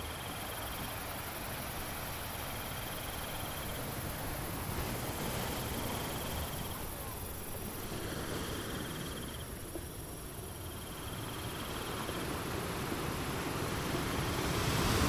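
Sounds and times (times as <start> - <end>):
insect trilling: 8.8 - 12.4.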